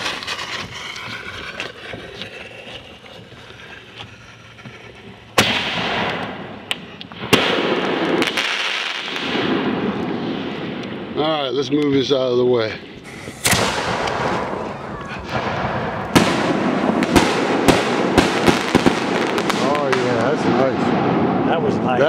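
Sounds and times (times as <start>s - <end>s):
firework launching with hiss: 0.0s - 1.6s, 4.5s - 10.7s, 13.0s - 21.1s
firework bursts: 0.0s - 11.2s, 13.0s - 22.0s.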